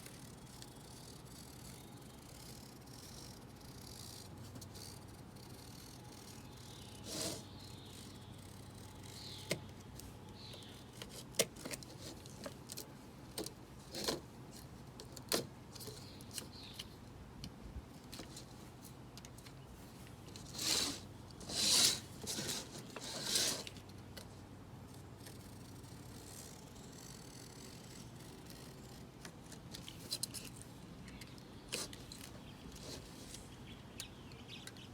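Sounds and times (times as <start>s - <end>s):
knife scratching through mesh: 1.0s - 9.4s, 20.4s - 23.8s.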